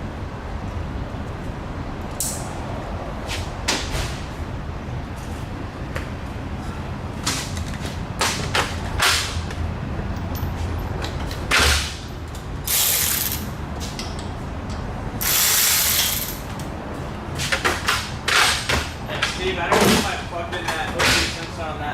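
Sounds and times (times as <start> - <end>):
steady low hum: 0.0 - 18.3
hissing bursts: 15.2 - 16.4.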